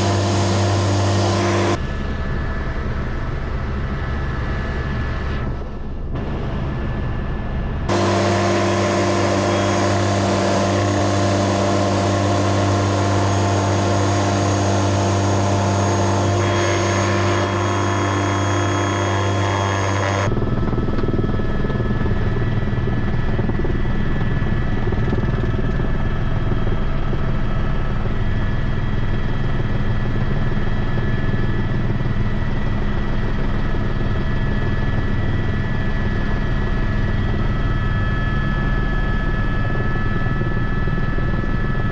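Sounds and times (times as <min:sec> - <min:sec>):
helicopter engine and rotor: 0:00.0 - 0:41.9.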